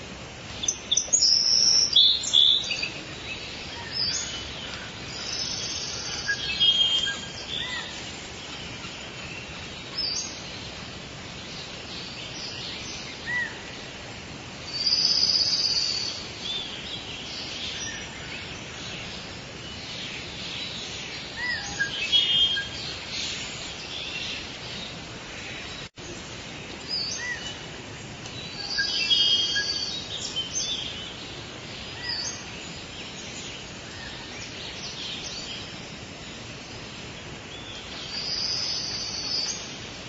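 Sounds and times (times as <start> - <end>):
steady background hiss: 0.0 - 40.0
birds chirping and whistling: 0.5 - 10.7, 14.7 - 25.0, 28.3 - 35.8.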